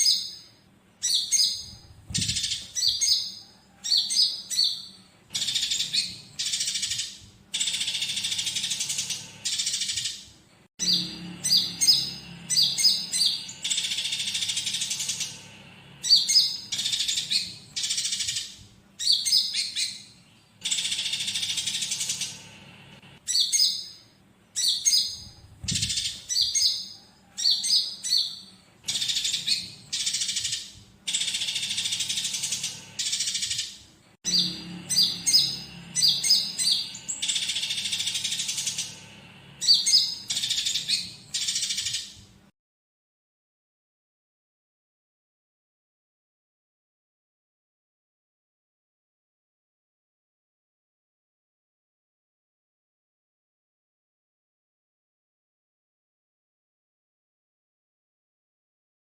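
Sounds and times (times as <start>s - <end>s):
songbird song with rasping trills: 0.0s - 42.3s.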